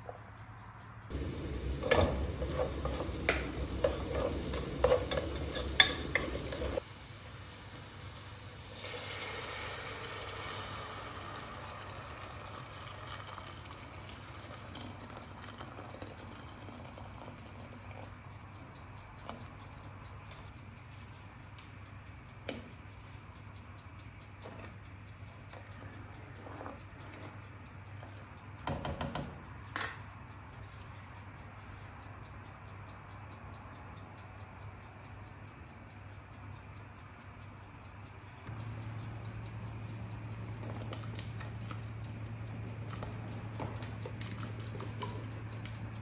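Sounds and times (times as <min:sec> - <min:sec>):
utensil clinking against pan: 0:01.1 - 0:06.8
sizzling hiss: 0:01.1 - 0:14.7.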